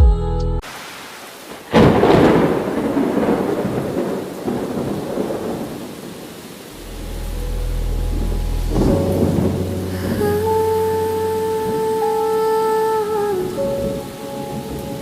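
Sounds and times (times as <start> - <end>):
steady rain: 0.6 - 15.0
thunderclap rumbling: 1.5 - 12.2
low steady hum: 6.8 - 11.6.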